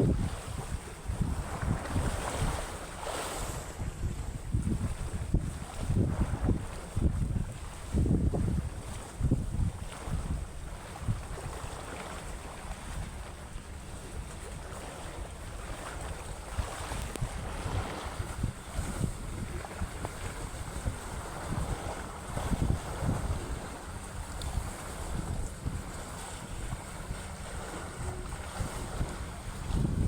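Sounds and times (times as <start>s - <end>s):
sea water rushing: 0.0s - 30.0s
wind buffeting microphone: 0.0s - 30.0s.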